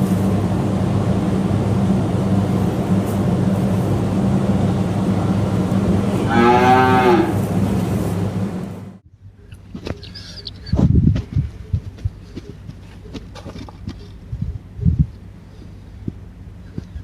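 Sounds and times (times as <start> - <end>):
steady low hum: 0.0 - 17.0
cow mooing: 5.9 - 7.6.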